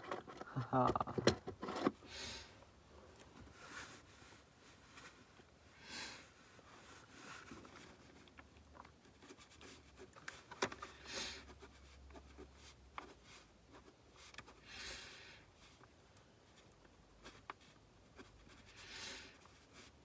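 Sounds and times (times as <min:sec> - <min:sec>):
soft rustles: 0:03.0 - 0:14.6.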